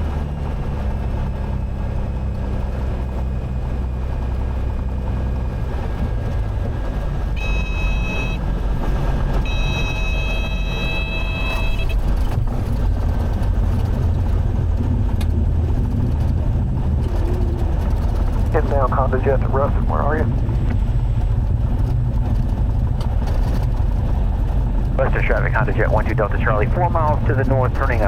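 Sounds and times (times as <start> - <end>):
aircraft engine cabin noise: 0.0 - 28.0
stall warning horn: 7.3 - 8.5, 9.4 - 12.1.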